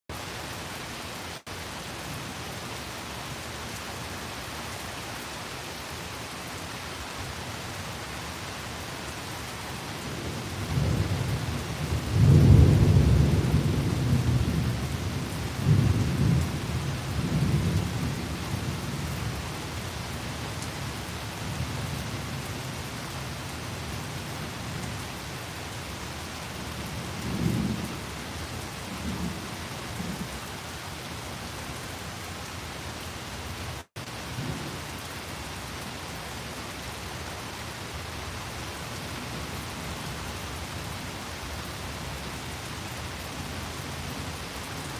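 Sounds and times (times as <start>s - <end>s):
steady rain: 0.1s - 44.9s
thunder rumbling: 10.1s - 18.7s.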